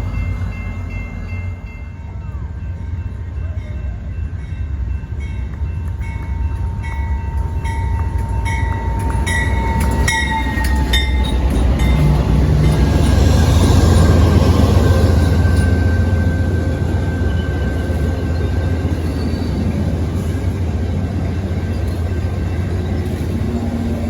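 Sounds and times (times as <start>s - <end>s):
train rumbling: 0.0s - 24.0s
train wheels clicking over rail joints: 5.4s - 24.0s.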